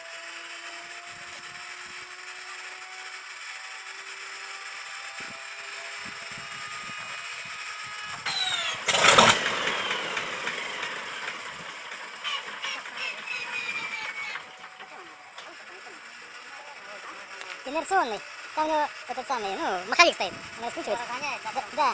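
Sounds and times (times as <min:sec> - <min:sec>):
inertia starter whine: 0:00.0 - 0:21.9
engine sharp pops: 0:08.1 - 0:21.9
starter engaging burst: 0:08.2 - 0:21.9.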